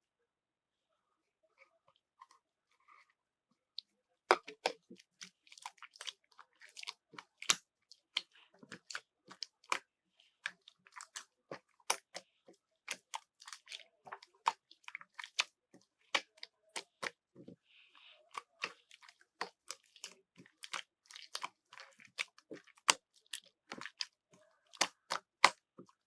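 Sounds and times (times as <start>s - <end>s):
slime clicking and popping: 18.3s - 25.8s.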